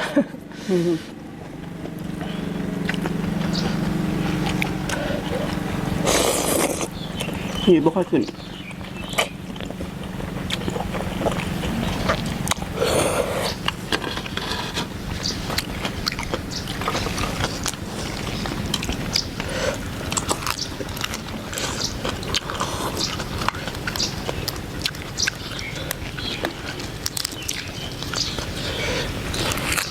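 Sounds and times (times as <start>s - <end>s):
person chewing and slurping: 0.8s - 7.7s, 8.4s - 29.9s.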